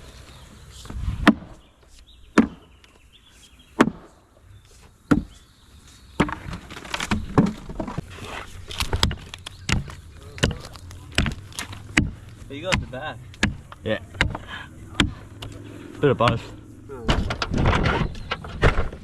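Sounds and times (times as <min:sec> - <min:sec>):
hard strikes on wood: 0:01.2 - 0:01.6, 0:02.3 - 0:02.7, 0:03.8 - 0:04.2, 0:05.1 - 0:05.4, 0:09.0 - 0:15.5, 0:16.1 - 0:17.9.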